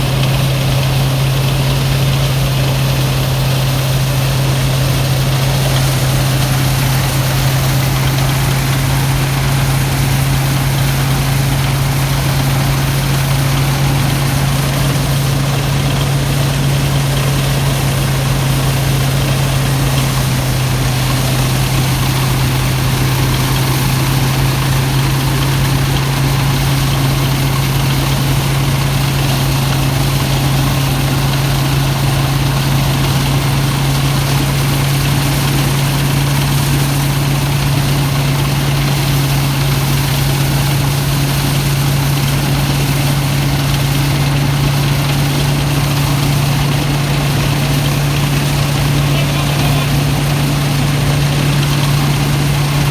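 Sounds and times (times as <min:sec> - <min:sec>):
threshing machine running: 0:00.0 - 0:52.9.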